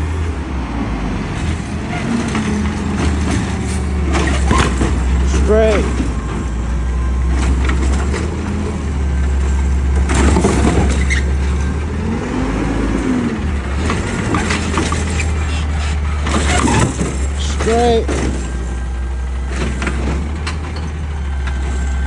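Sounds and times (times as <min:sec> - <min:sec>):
garbage truck engine rumble: 0:00.0 - 0:22.0
short clatter: 0:09.1 - 0:11.8, 0:13.7 - 0:22.0.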